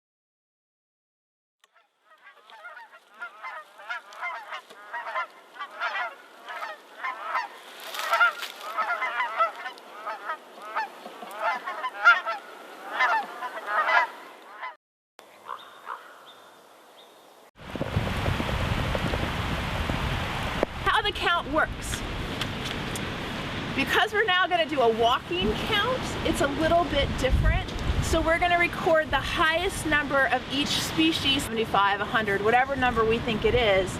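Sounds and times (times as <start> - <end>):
geese honking: 1.7 - 14.8, 15.4 - 16.4.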